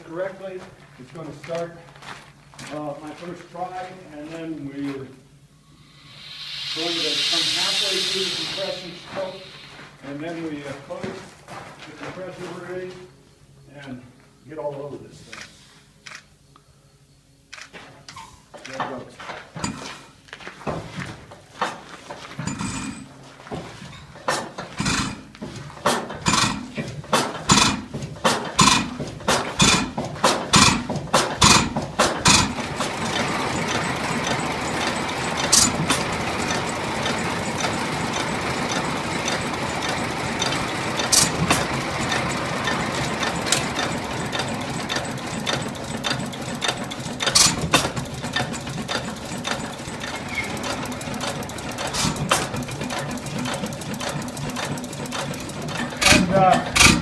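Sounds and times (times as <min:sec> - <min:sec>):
gasoline engine running: 0:05.8 - 0:11.2, 0:24.1 - 0:57.0.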